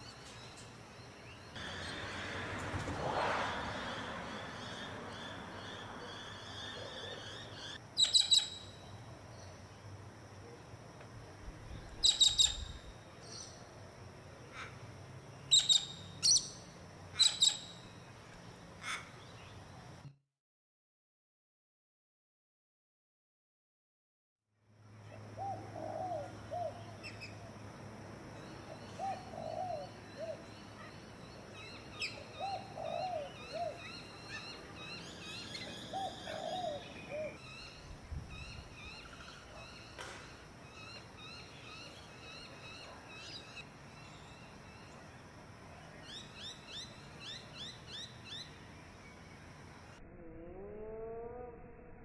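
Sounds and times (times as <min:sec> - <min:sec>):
high bird chirps: 0:07.3 - 0:08.7, 0:12.0 - 0:12.8, 0:15.5 - 0:16.6.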